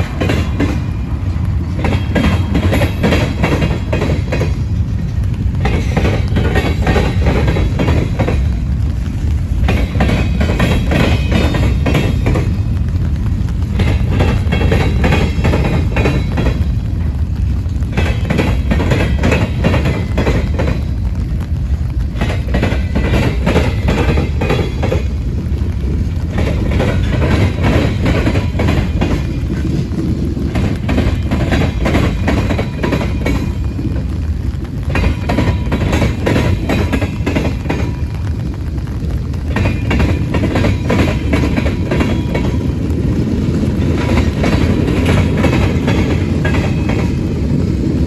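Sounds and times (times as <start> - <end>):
train low rumble: 0.0 - 48.0
wheel clicks over rail joints: 1.7 - 8.6, 17.7 - 20.9, 26.2 - 34.1.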